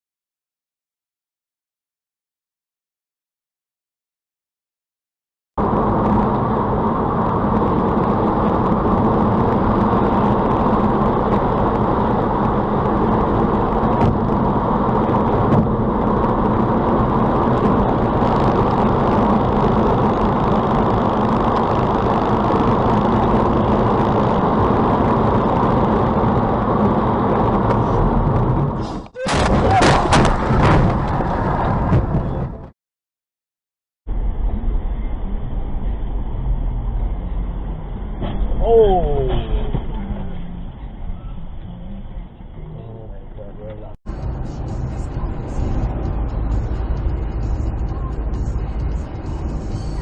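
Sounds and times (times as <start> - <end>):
car road and engine noise: 5.6 - 32.8, 34.1 - 50.0.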